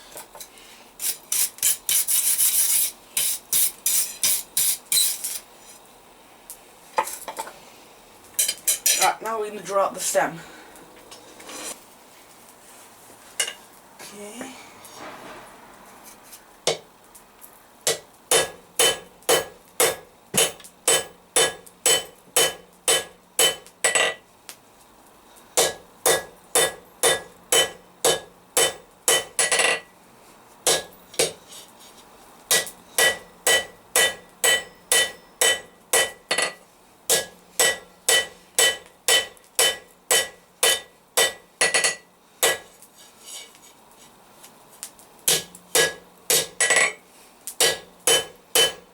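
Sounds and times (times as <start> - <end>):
hammer ringing on anvil: 32.5 - 36.5, 47.6 - 48.8.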